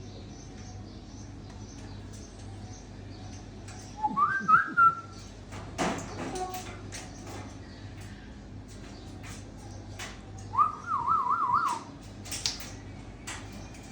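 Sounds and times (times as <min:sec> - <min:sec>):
parrot whistling: 0:10.6 - 0:11.8.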